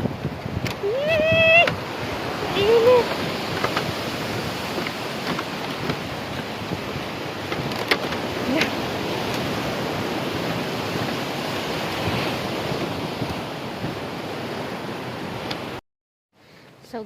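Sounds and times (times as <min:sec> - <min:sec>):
rushing sea water: 0:00.0 - 0:15.8
wind noise on microphone: 0:00.0 - 0:15.8
sharp knocks or splashes: 0:03.0 - 0:11.3.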